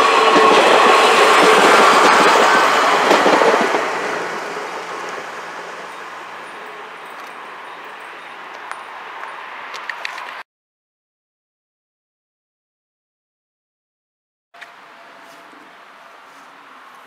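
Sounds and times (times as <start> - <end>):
railcar rumble and wheel noise: 0.0 - 10.4, 14.6 - 17.0.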